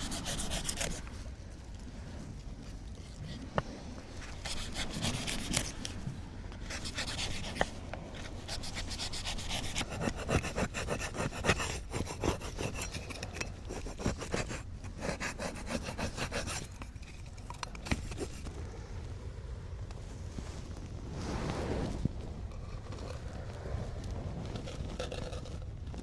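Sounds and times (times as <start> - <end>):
rasping scraping strokes: 0.0 - 1.3, 3.0 - 18.5.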